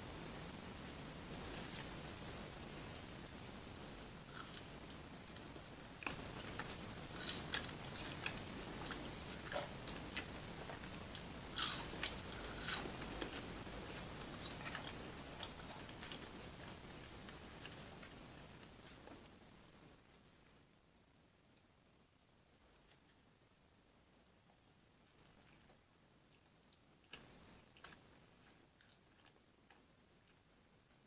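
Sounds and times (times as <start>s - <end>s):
biting and chewing burger: 11.5s - 16.7s.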